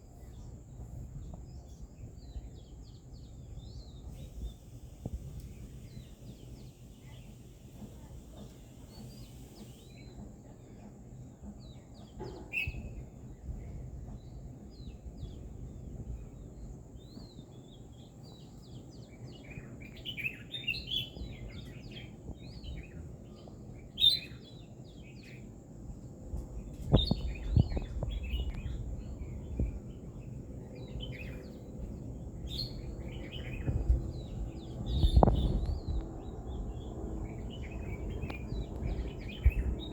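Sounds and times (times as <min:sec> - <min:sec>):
small birds chirping: 0:00.0 - 0:39.9
low background rumble: 0:24.4 - 0:39.9.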